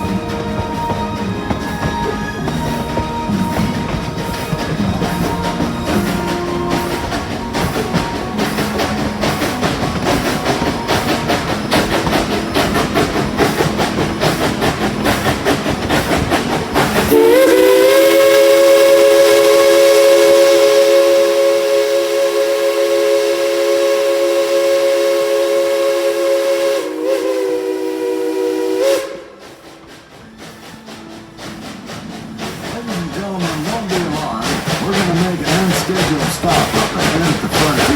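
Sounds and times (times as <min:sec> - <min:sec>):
steam locomotive chime whistle: 0:00.0 - 0:14.4, 0:17.0 - 0:31.8
dense rapid clatter: 0:31.3 - 0:37.9.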